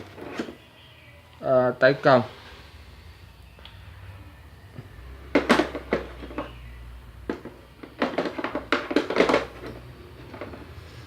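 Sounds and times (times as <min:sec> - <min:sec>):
metal tools clinking in plastic case: 0:07.3 - 0:10.6.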